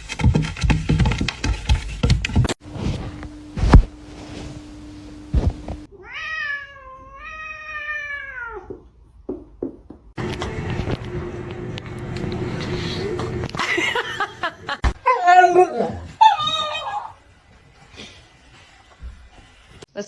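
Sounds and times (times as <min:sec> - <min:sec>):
cat meowing: 0:05.9 - 0:08.8.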